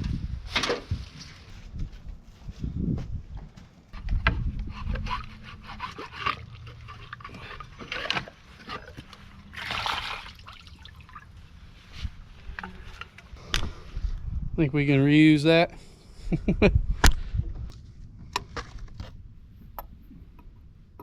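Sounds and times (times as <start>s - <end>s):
hand tools clicking and scraping: 4.0s - 9.3s.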